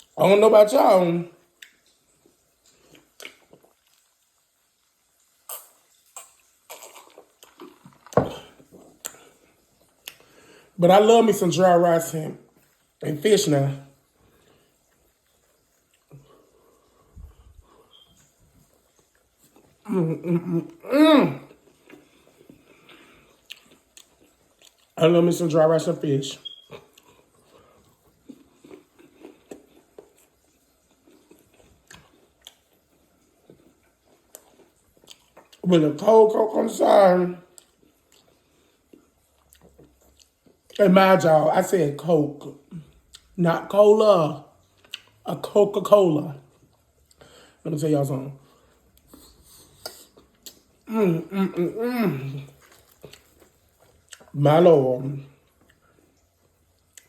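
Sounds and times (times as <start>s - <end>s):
wet chewing smacks and clicks: 1.4s - 10.3s, 14.0s - 19.9s, 21.5s - 25.0s, 26.4s - 35.7s, 37.5s - 40.9s, 42.4s - 43.4s, 44.6s - 45.5s, 48.4s - 50.9s, 52.4s - 54.4s, 55.3s - 57.0s.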